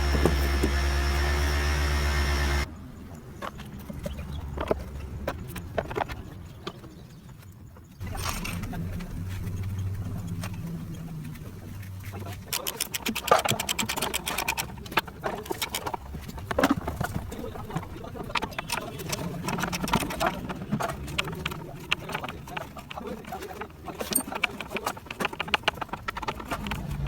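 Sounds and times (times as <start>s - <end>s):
hand tools clinking on metal: 8.0s - 10.7s, 11.8s - 27.0s.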